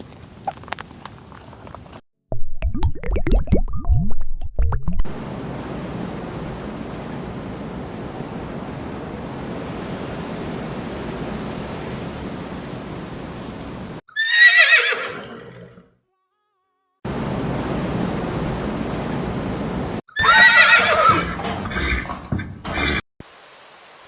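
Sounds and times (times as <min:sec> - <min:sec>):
horse whinnying: 0:14.1 - 0:15.8, 0:20.1 - 0:23.0.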